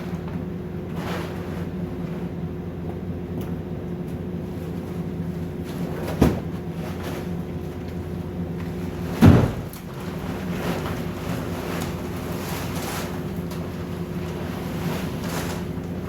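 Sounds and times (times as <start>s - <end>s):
engine running: 0.0s - 16.0s
heavy thump: 9.2s - 9.7s.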